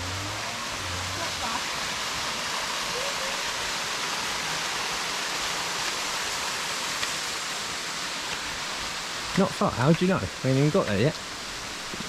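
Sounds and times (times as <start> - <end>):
water tumbling over rocks: 4.6 - 12.0.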